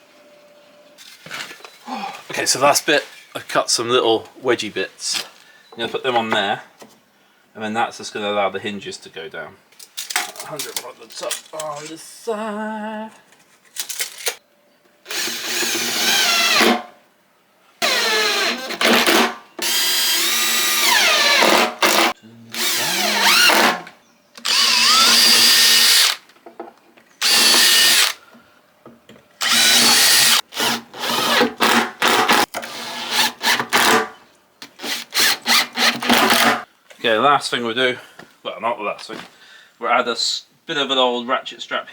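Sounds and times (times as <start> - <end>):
electric drill-driver bursts: 15.1 - 16.8, 17.8 - 23.8, 24.4 - 26.2, 27.2 - 28.2, 29.4 - 33.9, 34.8 - 36.6.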